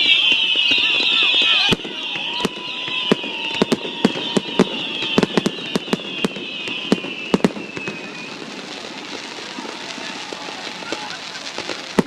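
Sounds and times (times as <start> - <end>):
falling firework whistles: 0.0 - 12.0
fireworks bangs and crackling: 0.0 - 12.0.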